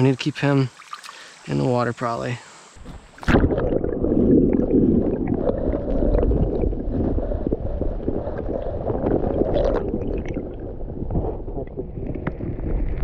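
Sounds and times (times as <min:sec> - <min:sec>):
creek water sloshing and gurgling: 0:00.7 - 0:01.7, 0:02.8 - 0:05.8
small splashes and knocks: 0:00.8 - 0:01.3, 0:02.8 - 0:03.6.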